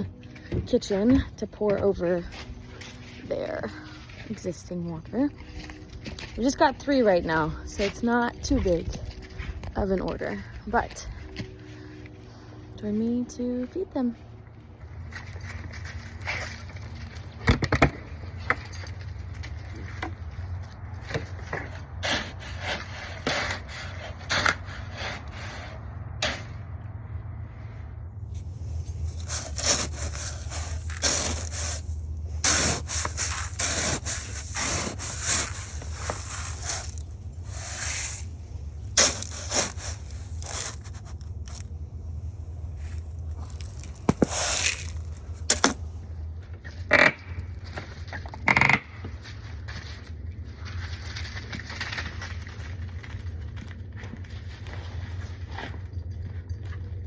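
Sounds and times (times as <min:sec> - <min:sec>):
scraping and crunching: 0:00.0 - 0:57.0
steady low rumble: 0:00.0 - 0:57.0.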